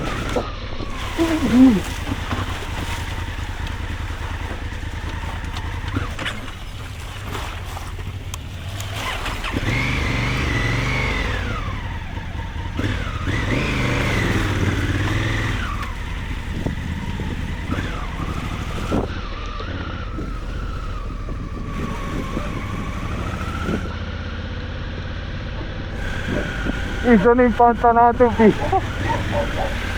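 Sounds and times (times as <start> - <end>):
motorcycle engine revving: 0.0 - 29.9.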